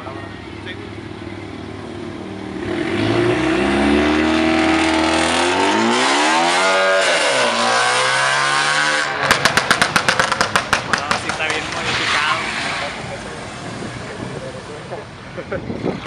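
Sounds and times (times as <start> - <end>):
car engine accelerating: 0.6 - 14.9.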